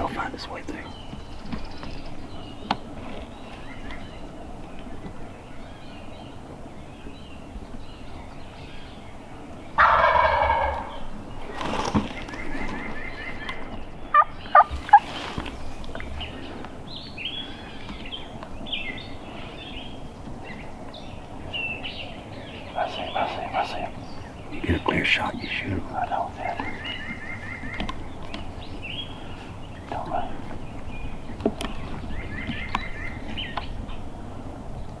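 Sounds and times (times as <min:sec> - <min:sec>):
small birds chirping: 0:00.0 - 0:35.0
turkey gobbling: 0:09.8 - 0:11.2, 0:12.2 - 0:16.2, 0:22.7 - 0:27.8.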